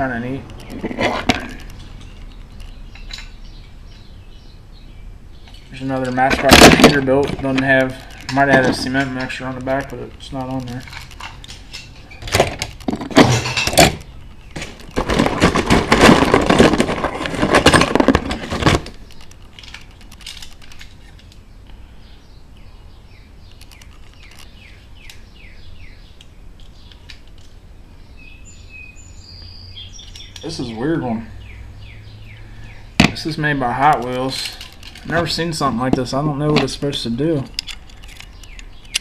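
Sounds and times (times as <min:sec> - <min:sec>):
metal toy cars clattering: 0:00.0 - 0:03.4, 0:05.5 - 0:21.3, 0:33.0 - 0:39.0
birds chirping faintly: 0:00.0 - 0:39.0.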